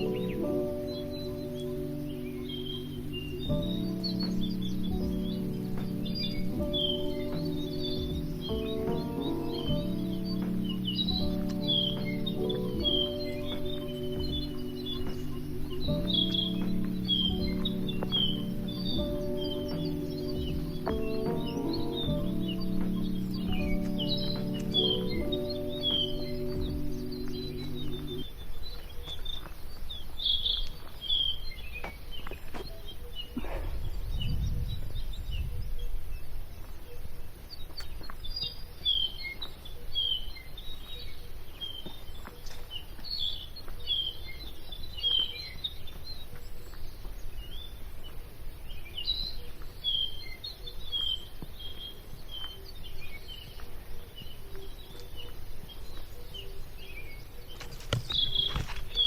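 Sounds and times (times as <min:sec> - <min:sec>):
birds chirping: 0:00.0 - 0:59.0
low rumble: 0:33.4 - 0:35.8.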